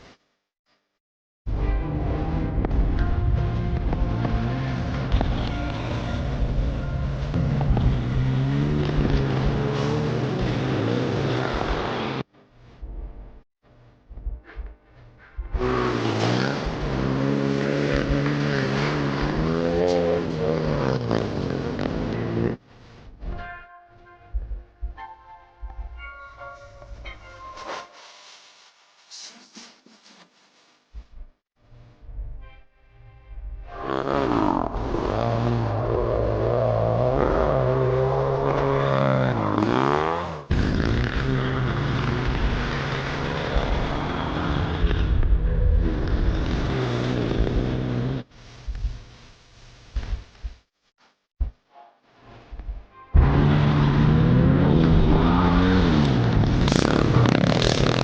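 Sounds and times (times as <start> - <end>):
motorbike engine revving: 3.4 - 12.2, 15.6 - 22.6, 33.8 - 48.3, 53.1 - 58.0.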